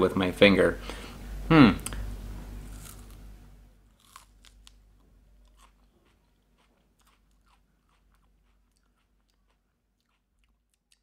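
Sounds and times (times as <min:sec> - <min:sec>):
crunchy chewing of fruit: 0:02.6 - 0:03.3, 0:03.9 - 0:11.0.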